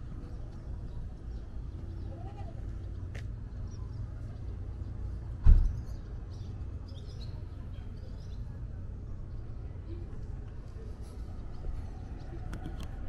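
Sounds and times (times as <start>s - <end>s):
low outdoor rumble: 0.0s - 13.0s
small birds chirping: 0.2s - 10.0s
sharp thump: 5.4s - 5.8s.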